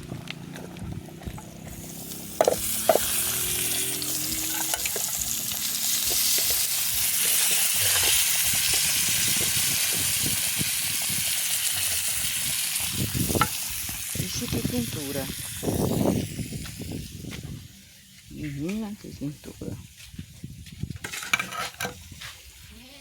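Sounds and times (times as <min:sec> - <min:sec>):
vegetables sizzling in oil: 0:01.6 - 0:17.0.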